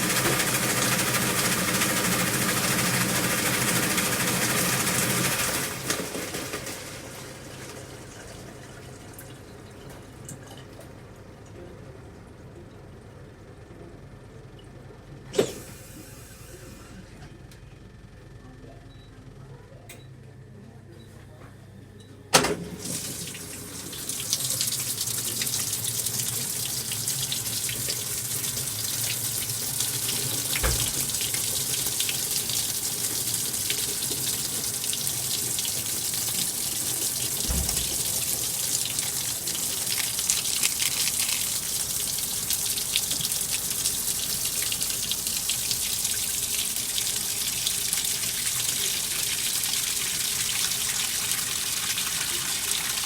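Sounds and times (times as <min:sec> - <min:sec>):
water rushing into washing machine: 0:00.0 - 0:11.0, 0:15.3 - 0:17.0, 0:22.3 - 0:53.0
washing machine click: 0:22.3 - 0:23.2, 0:30.4 - 0:31.3, 0:37.3 - 0:39.0.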